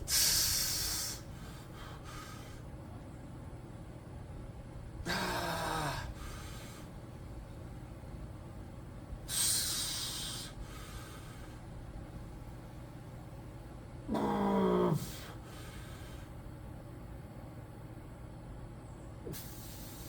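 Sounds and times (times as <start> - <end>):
hissing exhale through teeth: 0.0 - 1.3, 9.3 - 10.6, 19.3 - 20.0
man breathing hard: 0.0 - 2.8, 5.0 - 7.2, 9.2 - 11.9, 14.1 - 16.6, 19.3 - 20.0
steady low hum: 0.0 - 20.0.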